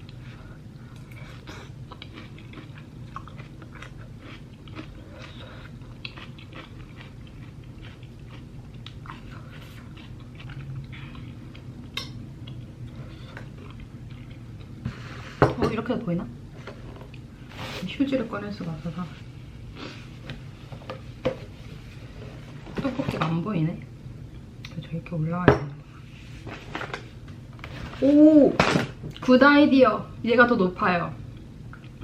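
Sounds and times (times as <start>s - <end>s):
low steady hum: 0.0s - 32.0s
person chewing with wet smacks: 0.9s - 14.8s, 31.3s - 32.0s.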